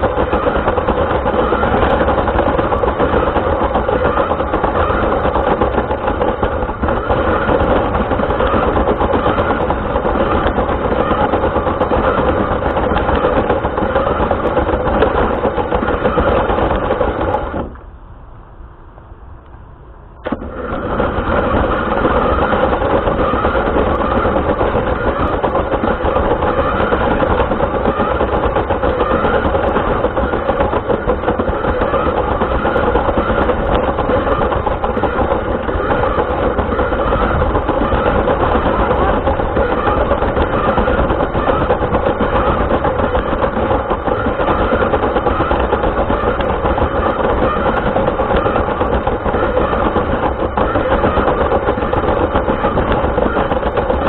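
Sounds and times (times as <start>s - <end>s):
rc car motor buzzing rattle: 0.0s - 17.8s, 20.2s - 54.0s.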